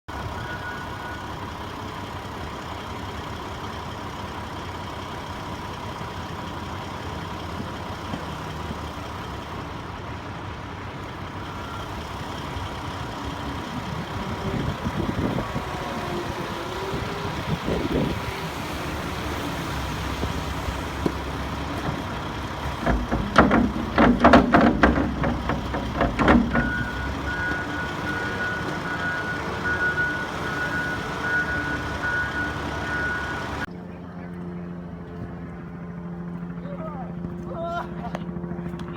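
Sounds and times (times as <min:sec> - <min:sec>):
reversing beeper: 0:00.1 - 0:01.4, 0:26.4 - 0:33.7
heavy truck engine running: 0:00.1 - 0:38.9.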